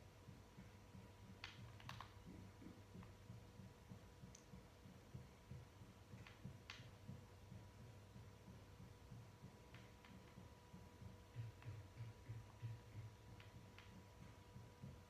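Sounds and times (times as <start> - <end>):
soft clicks: 1.4 - 3.2, 4.2 - 4.6, 6.1 - 7.2, 9.5 - 15.0.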